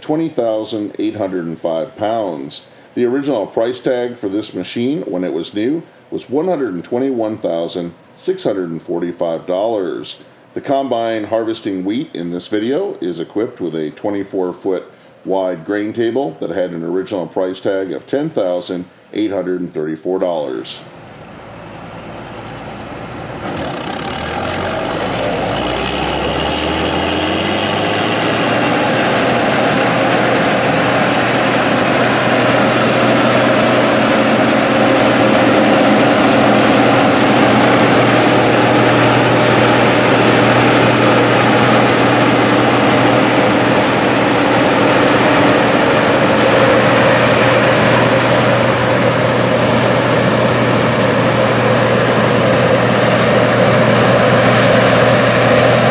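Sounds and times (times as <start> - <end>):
combine harvester engine running: 20.8 - 55.9.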